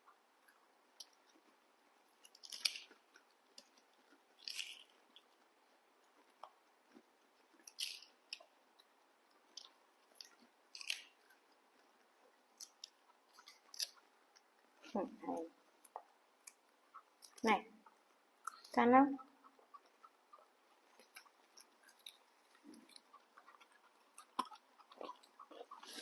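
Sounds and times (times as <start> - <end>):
chewing clicks: 0.4 - 15.0, 15.7 - 26.0
apple crunching: 2.2 - 5.5, 6.1 - 8.5, 9.5 - 14.5, 20.9 - 26.0.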